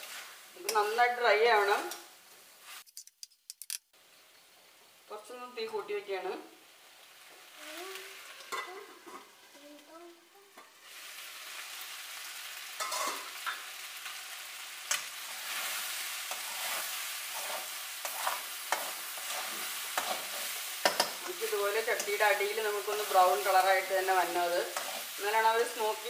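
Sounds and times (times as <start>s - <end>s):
chicken sizzling in a pan: 0.0s - 2.9s, 4.0s - 26.0s
metal spatula scraping a pan: 12.8s - 13.4s, 14.9s - 25.8s.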